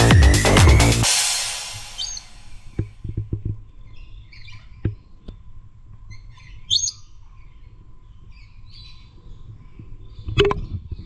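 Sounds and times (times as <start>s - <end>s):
birds chirping: 1.8s - 2.9s.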